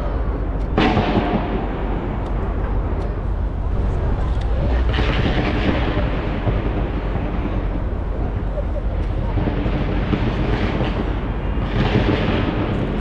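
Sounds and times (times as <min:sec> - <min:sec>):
crowd voices: 0:00.0 - 0:13.0
fireworks bursting and crackling: 0:00.6 - 0:02.9, 0:03.8 - 0:13.0
sharp bang: 0:00.8 - 0:02.8.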